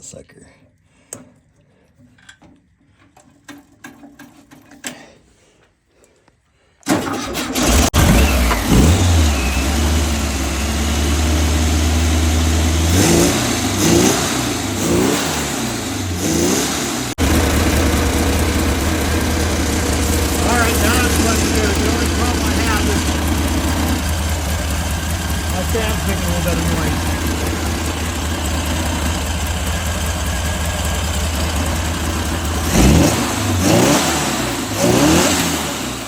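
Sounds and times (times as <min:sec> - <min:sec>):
engine clicks: 0:06.8 - 0:10.8, 0:17.2 - 0:33.1
engine starting and revving: 0:06.8 - 0:36.0.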